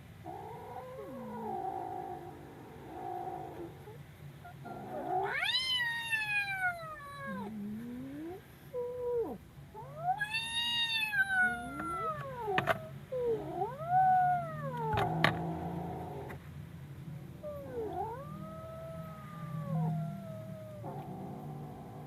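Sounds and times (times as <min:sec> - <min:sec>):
kitten yowling: 0:04.5 - 0:07.5, 0:08.8 - 0:15.2, 0:17.4 - 0:21.1.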